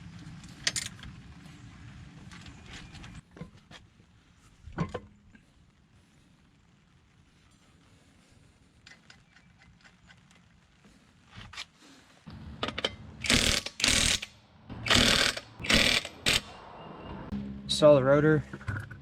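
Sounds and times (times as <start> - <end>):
ratchet wrench clicking: 13.2 - 16.5.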